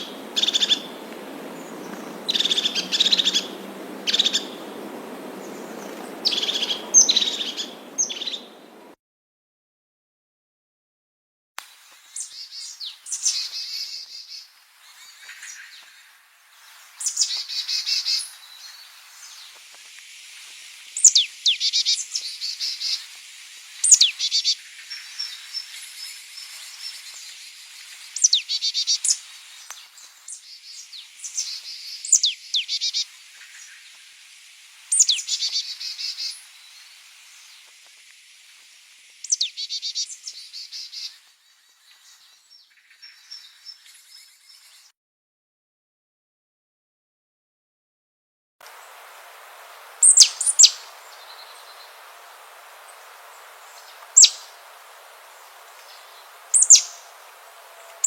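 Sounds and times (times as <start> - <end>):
songbird singing trill: 0.0 - 8.9, 20.9 - 34.0, 34.8 - 37.7, 39.2 - 44.9, 49.7 - 58.0.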